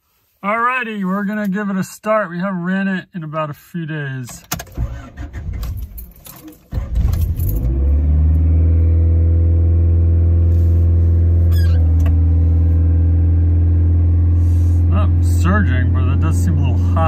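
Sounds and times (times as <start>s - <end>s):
car engine starting and idling: 4.3s - 17.0s.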